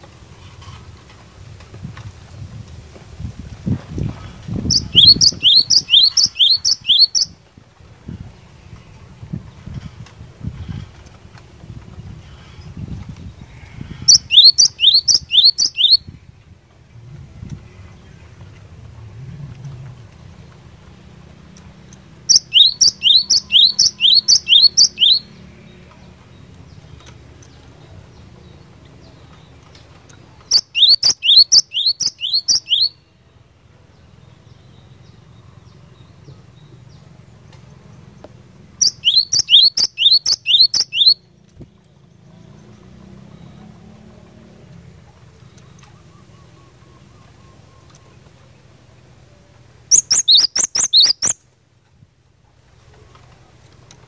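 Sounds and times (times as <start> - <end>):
bird singing sharp high notes: 4.7 - 7.4, 14.1 - 16.1, 22.3 - 25.4, 30.5 - 33.0, 38.8 - 41.2, 49.9 - 51.4.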